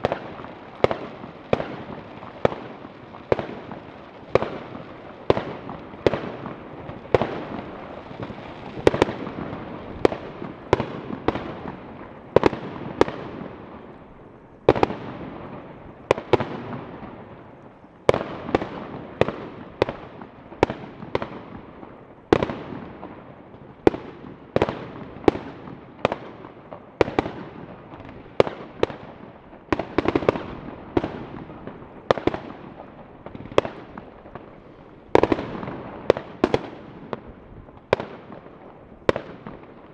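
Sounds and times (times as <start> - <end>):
distant fireworks bangs: 0.0 - 39.9
fireworks sharp bangs: 0.0 - 39.9.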